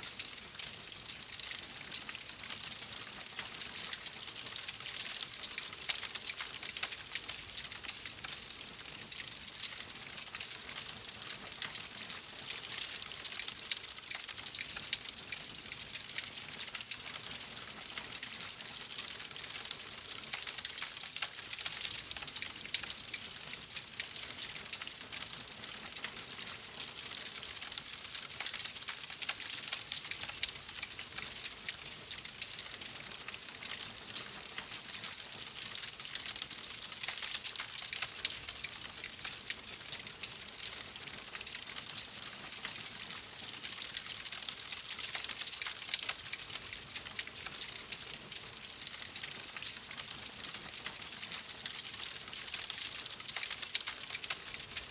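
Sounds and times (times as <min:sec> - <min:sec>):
wood fire crackling: 0:03.0 - 0:10.0, 0:35.3 - 0:54.9.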